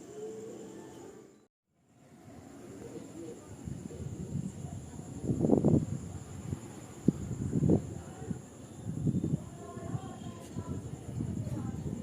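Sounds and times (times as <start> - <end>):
wind buffeting microphone: 3.4 - 12.0.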